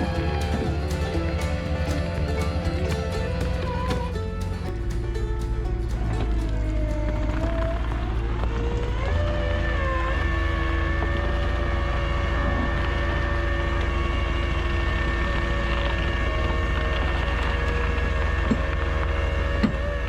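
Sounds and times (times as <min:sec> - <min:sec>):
steady whine: 0:00.0 - 0:10.3
truck engine rumble: 0:00.0 - 0:20.0.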